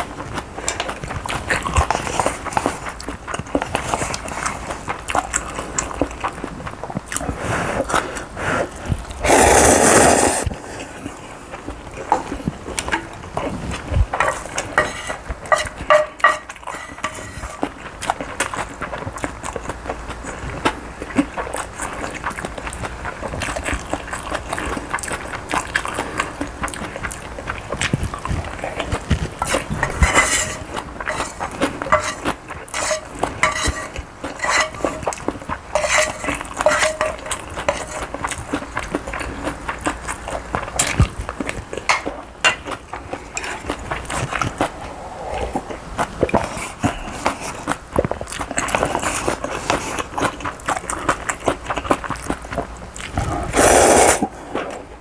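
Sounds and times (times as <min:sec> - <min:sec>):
mouth eating noises: 0:00.0 - 0:55.0
spoon scraping a bowl: 0:14.2 - 0:17.8, 0:29.3 - 0:39.3.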